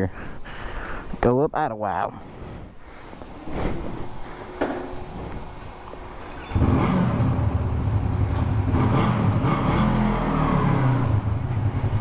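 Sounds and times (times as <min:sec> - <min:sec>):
motorcycle engine starting and running: 0:06.3 - 0:12.0.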